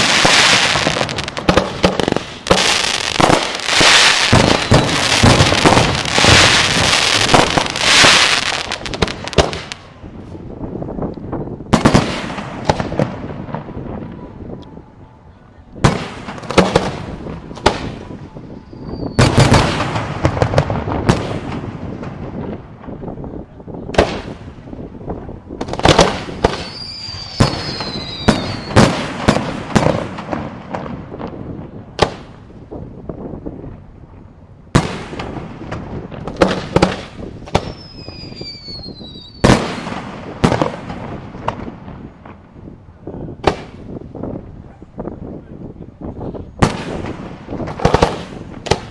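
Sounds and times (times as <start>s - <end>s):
fireworks falling whistles: 0.0s - 9.8s, 17.6s - 20.3s, 25.9s - 30.2s, 36.3s - 42.4s
fireworks bangs: 0.0s - 15.0s, 15.8s - 48.9s.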